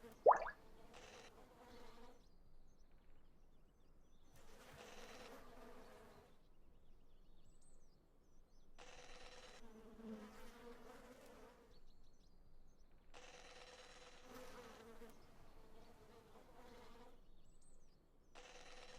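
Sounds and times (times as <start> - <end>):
faint high chirps: 0.3 - 0.6.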